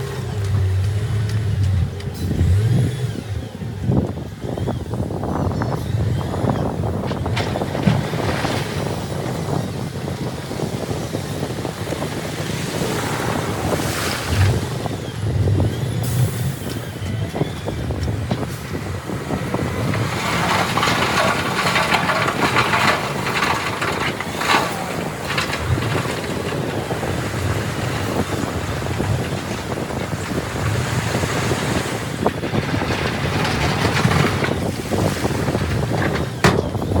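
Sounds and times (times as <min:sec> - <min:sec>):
earthmoving machinery engine rumble: 0:00.0 - 0:37.0
wind on microphone: 0:00.0 - 0:37.0
harsh machinery clattering: 0:05.5 - 0:12.0, 0:14.4 - 0:37.0.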